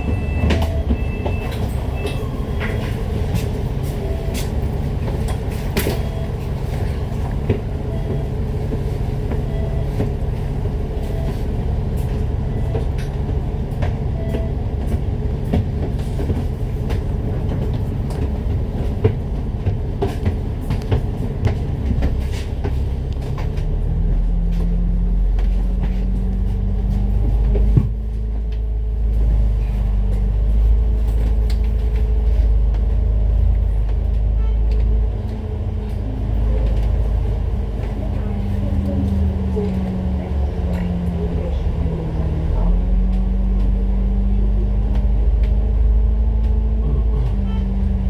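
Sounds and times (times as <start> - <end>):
bus engine and road rumble: 0.0 - 48.0.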